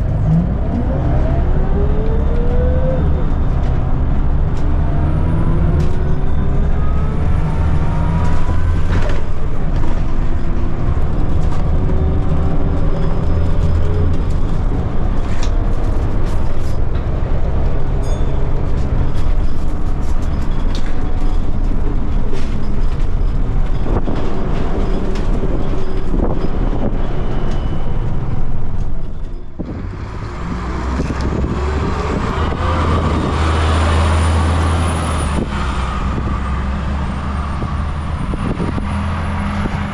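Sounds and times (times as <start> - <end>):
bus engine and gearbox running: 0.0 - 39.9
bus body clicks and rattles: 8.1 - 30.0.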